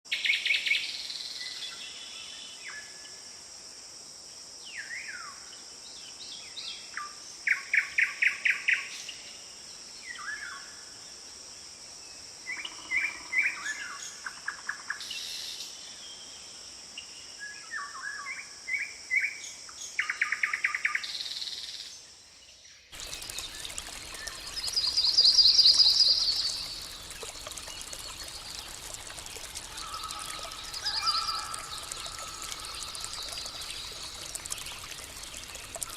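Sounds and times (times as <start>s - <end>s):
birds chirping and trilling: 23.0s - 35.9s.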